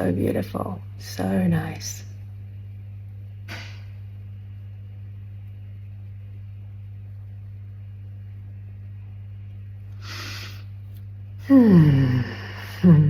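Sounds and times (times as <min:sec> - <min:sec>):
steady low hum: 0:00.0 - 0:13.0
breath drawn in: 0:10.0 - 0:10.8.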